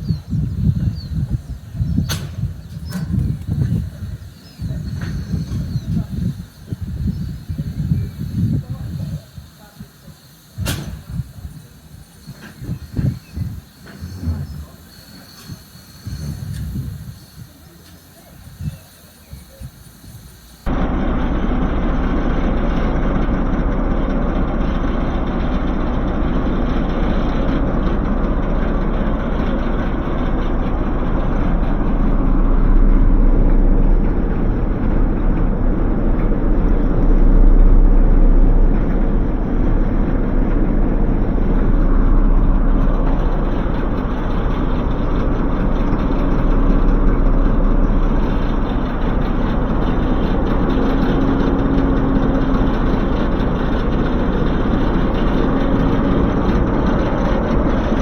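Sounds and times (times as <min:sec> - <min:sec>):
train engine idling: 0:00.0 - 0:58.0.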